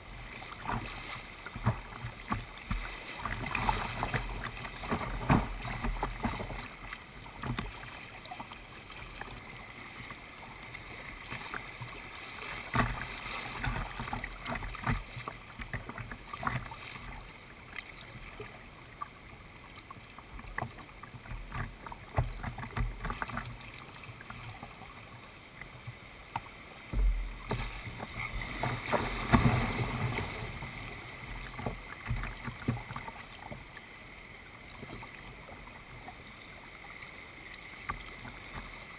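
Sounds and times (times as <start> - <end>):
paddle strokes splashing: 0.0 - 38.9
low rumbles: 26.9 - 30.0.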